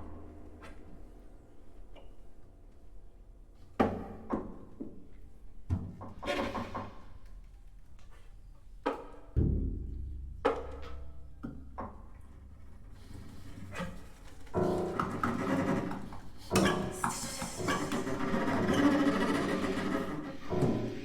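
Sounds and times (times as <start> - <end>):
deep ringing low note: 9.4 - 11.5.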